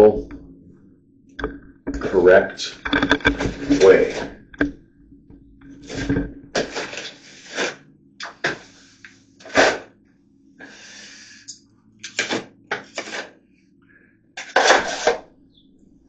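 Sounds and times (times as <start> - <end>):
wood scraping and knocking: 1.4 - 7.8, 14.4 - 15.3.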